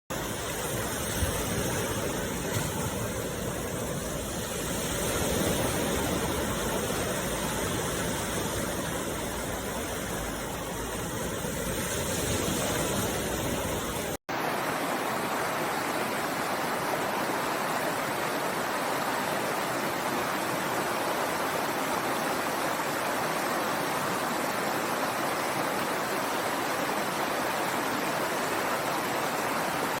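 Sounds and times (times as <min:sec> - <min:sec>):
waterfall rushing: 0:00.1 - 0:30.0.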